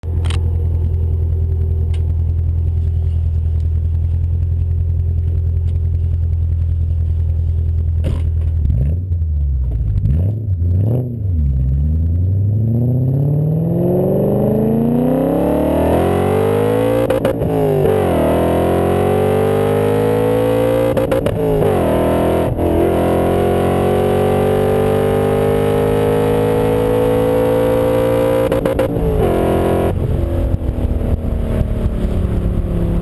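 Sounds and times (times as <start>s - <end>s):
car engine revving and accelerating: 8.6s - 33.0s.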